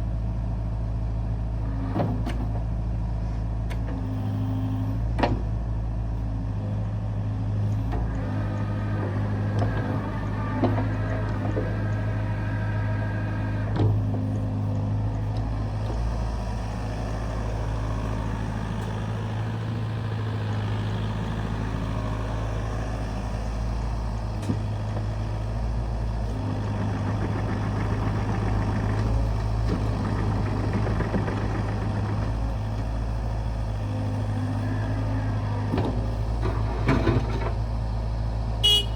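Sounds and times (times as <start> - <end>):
excavator diesel engine running: 0.0 - 38.9
hydraulic whine: 8.0 - 37.7.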